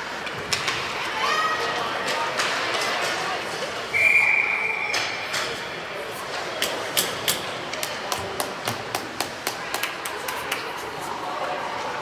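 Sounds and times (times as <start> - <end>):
hockey sticks and puck clacking: 0.0 - 3.9, 6.3 - 10.8
murmur of voices: 0.0 - 12.0.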